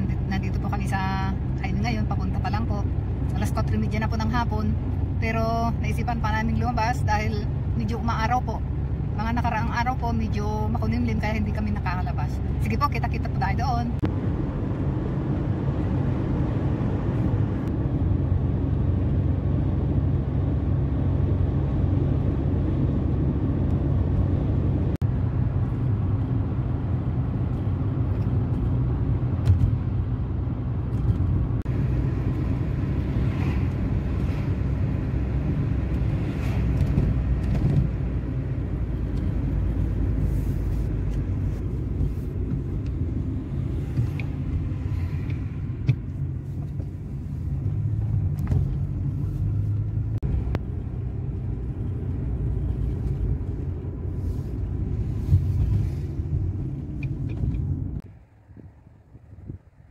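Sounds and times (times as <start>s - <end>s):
car interior road rumble: 0.0s - 59.9s.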